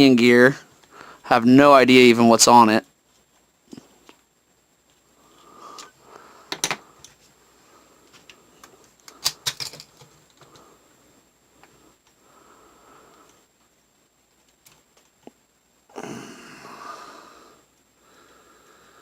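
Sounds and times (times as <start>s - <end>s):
tools and parts clicking: 9.1s - 10.5s.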